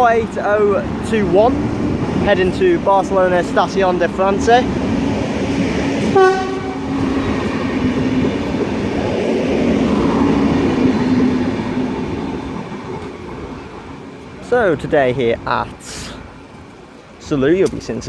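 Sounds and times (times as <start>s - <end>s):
train running noise and hum: 0.0s - 18.0s
train horn blast: 6.0s - 7.7s.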